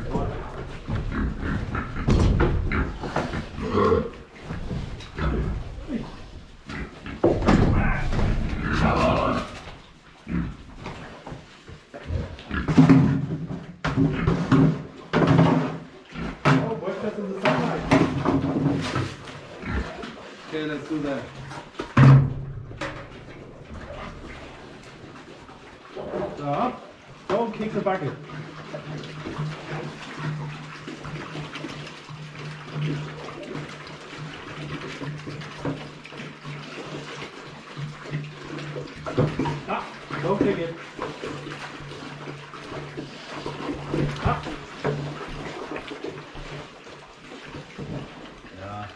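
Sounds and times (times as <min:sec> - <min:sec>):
water splashing in a bucket: 0:00.0 - 0:48.9
pigs squealing: 0:00.3 - 0:04.3, 0:05.2 - 0:10.6, 0:19.5 - 0:20.3
knocks: 0:02.0 - 0:03.3, 0:21.9 - 0:23.2.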